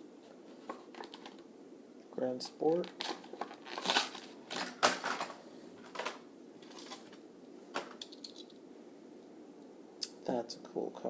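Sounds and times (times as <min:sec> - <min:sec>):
plastic packaging crackling: 0:00.7 - 0:01.4, 0:02.7 - 0:07.2.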